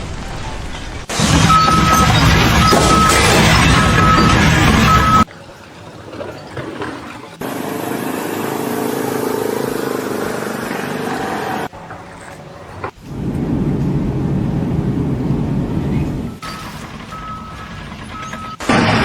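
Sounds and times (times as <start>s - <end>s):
engine running steadily: 13.0s - 18.8s.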